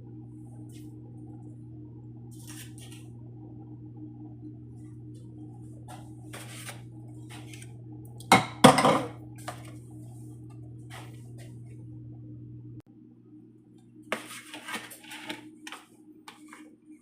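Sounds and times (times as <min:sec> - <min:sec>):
steady low hum: 0:00.0 - 0:17.0
dishes and utensils clattering: 0:08.3 - 0:09.2.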